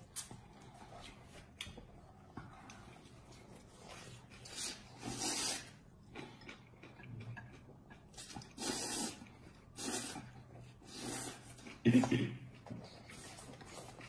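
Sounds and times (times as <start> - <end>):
person chewing: 0.0 - 14.0
person slurping noodles: 4.4 - 5.8, 8.2 - 11.8.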